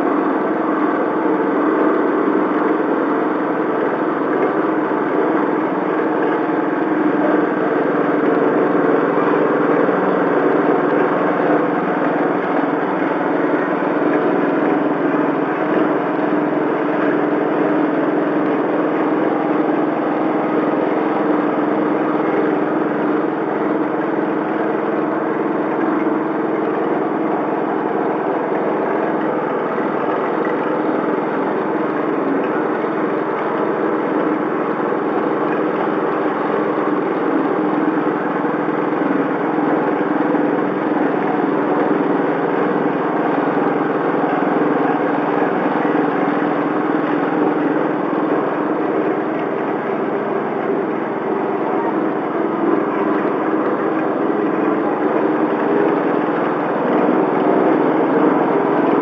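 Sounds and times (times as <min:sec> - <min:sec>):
press machine engine humming: 0:00.0 - 0:59.0.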